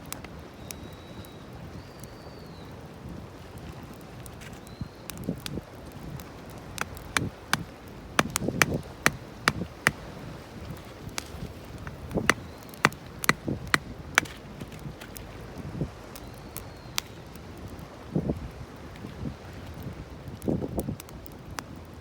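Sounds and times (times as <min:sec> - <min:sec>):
hatchet splitting firewood: 0:06.8 - 0:10.2, 0:11.1 - 0:15.2.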